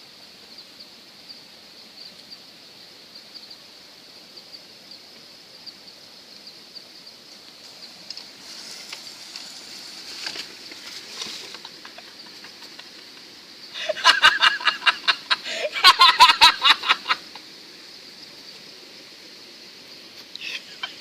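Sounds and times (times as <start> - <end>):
high insect buzz: 0.0 - 21.0
people laughing: 11.4 - 17.4.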